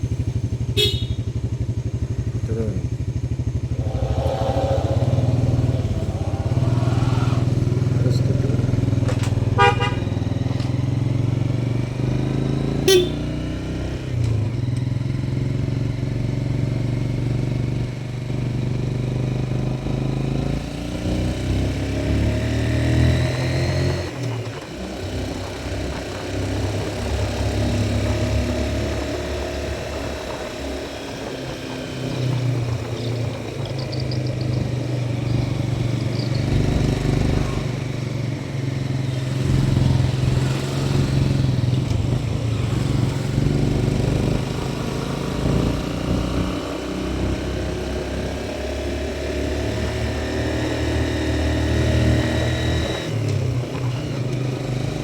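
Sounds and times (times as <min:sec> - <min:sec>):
vehicle horn honks: 0:00.8 - 0:01.2, 0:09.6 - 0:10.0, 0:12.9 - 0:13.2
motorcycle engine running: 0:25.4 - 0:48.0.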